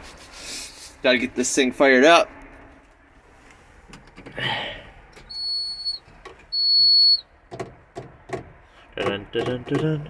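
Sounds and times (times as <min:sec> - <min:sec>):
rustle in cab: 0:02.6 - 0:06.8
high-pitched electronic beeps: 0:05.3 - 0:07.3
clicks in cab: 0:07.5 - 0:10.0.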